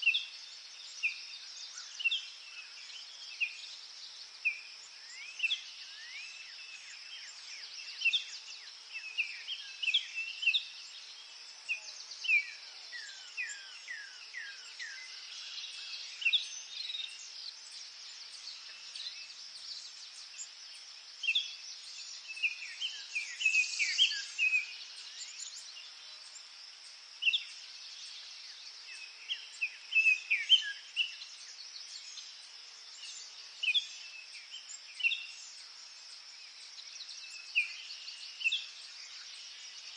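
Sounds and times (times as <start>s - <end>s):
birds chirping and whistling: 21.2s - 25.6s.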